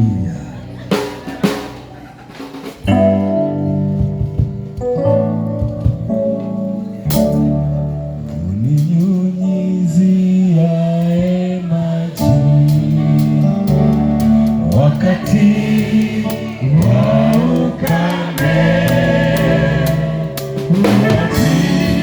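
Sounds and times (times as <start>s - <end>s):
gospel keyboard: 0.0s - 22.0s
people singing gospel: 10.2s - 22.0s.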